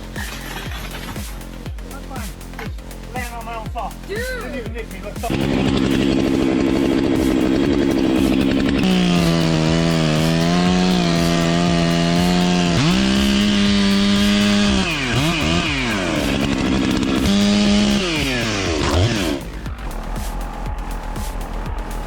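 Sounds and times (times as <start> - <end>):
two-stroke chainsaw revving: 5.1 - 21.4.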